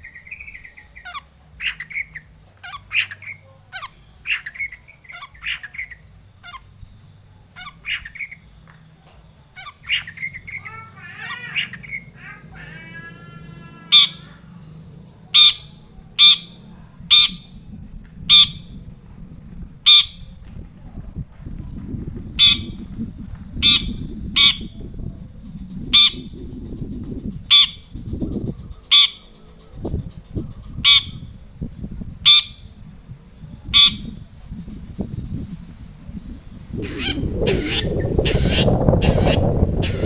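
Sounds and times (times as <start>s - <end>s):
low rumbling background noise: 0.0s - 40.0s
shrike harsh calls: 9.6s - 17.7s, 27.4s - 30.0s, 36.5s - 40.0s.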